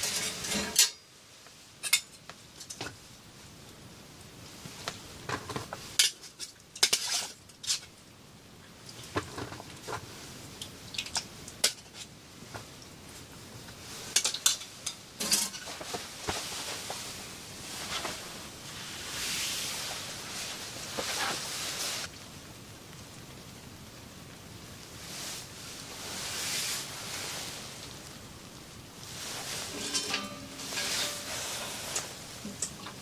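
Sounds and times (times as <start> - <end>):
pots and dishes clinking: 0.0 - 1.1, 1.8 - 3.0, 5.2 - 7.9, 14.0 - 17.1, 29.3 - 33.0
steady hiss: 0.0 - 33.0.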